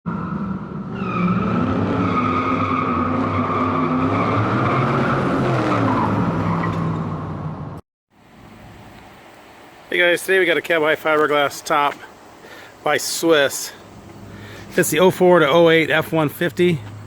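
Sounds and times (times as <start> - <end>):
tire squeal: 0.1 - 7.4.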